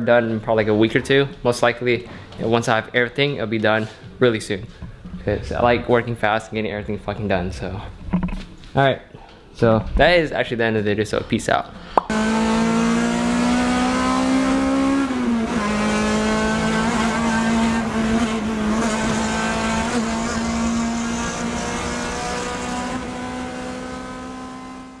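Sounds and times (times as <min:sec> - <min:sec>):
car engine from inside cabin: 0:12.1 - 0:25.0.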